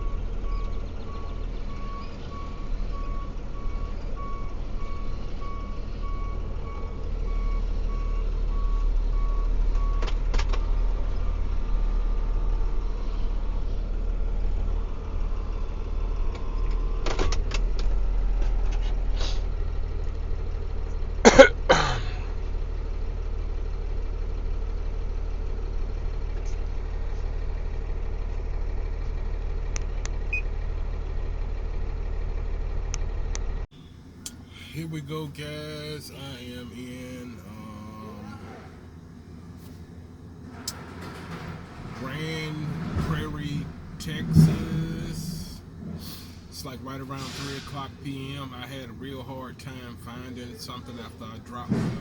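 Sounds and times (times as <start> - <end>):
backup alarm beeping: 0.0 - 10.2, 33.8 - 49.1
diesel truck engine rumbling: 0.0 - 52.0
loud knocks: 40.4 - 48.1, 51.6 - 52.0.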